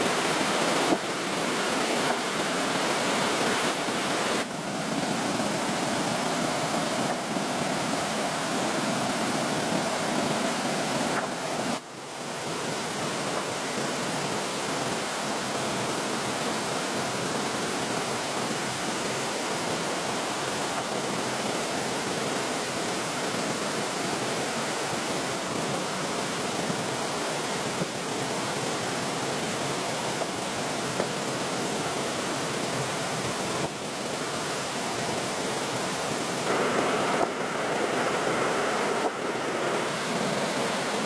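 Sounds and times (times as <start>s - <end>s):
rushing water: 0.0s - 41.0s.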